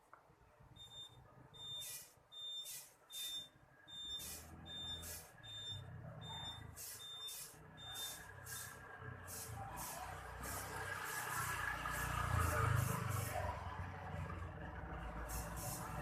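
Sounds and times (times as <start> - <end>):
reversing beeps: 0.8 - 8.7
short hiss: 1.8 - 3.4, 6.8 - 9.9.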